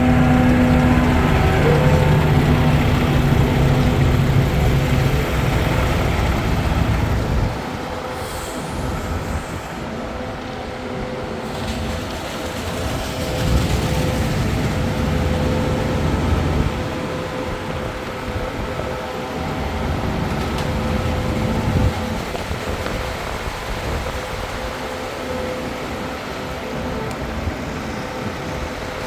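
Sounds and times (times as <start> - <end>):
machine engine humming: 0.0 - 29.0.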